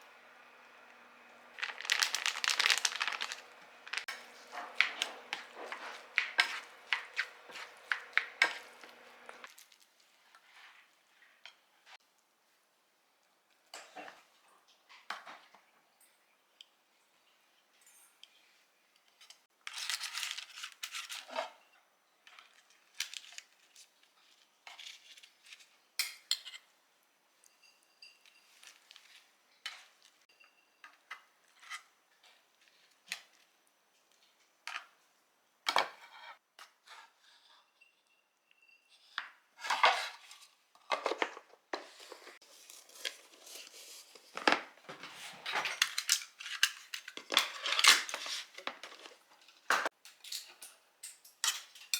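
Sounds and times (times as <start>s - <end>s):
dishes and utensils clattering: 3.9s - 9.5s, 44.3s - 51.9s.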